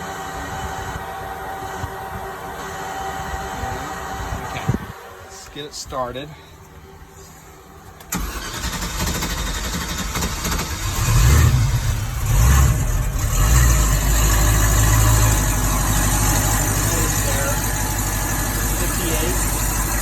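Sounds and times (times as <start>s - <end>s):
starter motor cranking: 8.1s - 20.0s
boat engine revving and idling: 10.4s - 20.0s.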